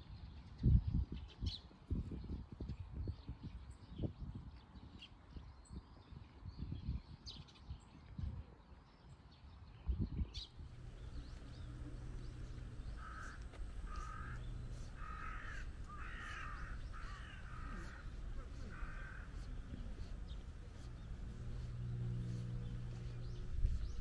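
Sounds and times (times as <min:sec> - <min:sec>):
low steady hum: 0:10.6 - 0:24.0
bird calling harshly: 0:10.7 - 0:24.0.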